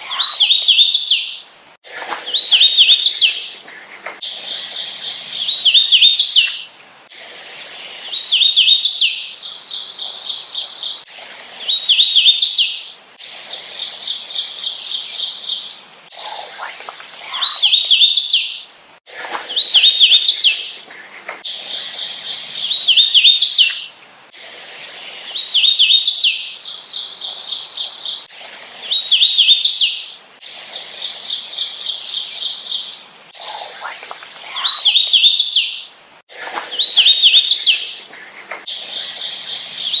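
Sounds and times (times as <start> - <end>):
warbler song whistled notes: 0.0 - 1.5, 2.1 - 3.6, 4.2 - 6.8, 7.9 - 13.0, 13.7 - 18.8, 19.4 - 20.8, 21.4 - 24.0, 25.2 - 30.2, 31.0 - 40.0
faint evenly spaced bird notes: 2.2 - 6.8, 19.5 - 24.0, 36.7 - 40.0.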